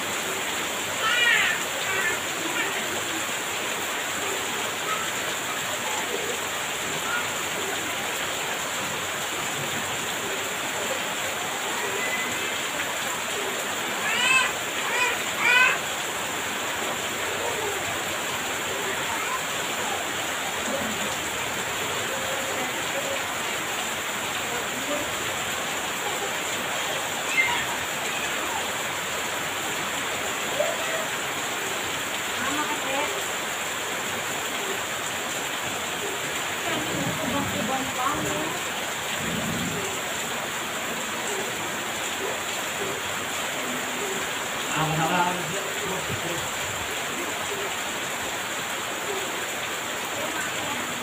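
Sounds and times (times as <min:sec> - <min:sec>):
heavy rain pouring: 0:00.0 - 0:51.0.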